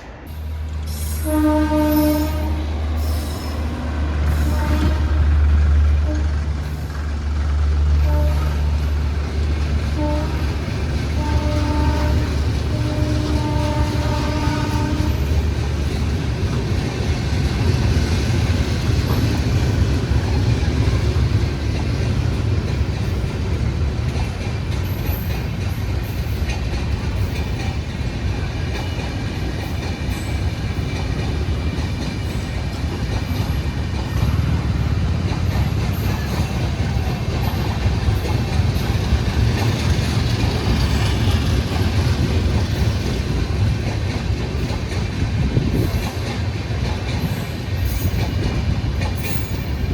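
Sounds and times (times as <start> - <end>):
train rumbling: 0.0 - 49.9
train horn: 0.9 - 6.5, 7.9 - 9.1, 9.8 - 15.6.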